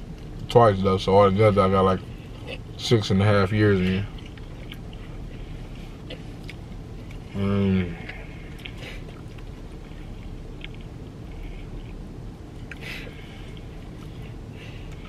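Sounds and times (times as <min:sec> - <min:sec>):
low steady hum: 0:00.0 - 0:15.0
chewing and fork sounds: 0:02.2 - 0:02.8, 0:03.7 - 0:07.4, 0:08.0 - 0:12.9.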